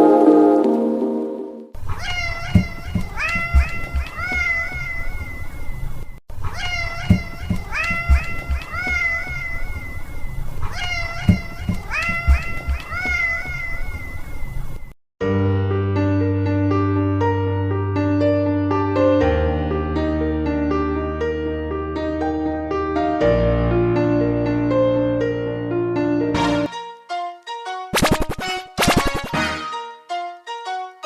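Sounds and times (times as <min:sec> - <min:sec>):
cat meowing: 0:01.9 - 0:05.4, 0:06.4 - 0:14.4.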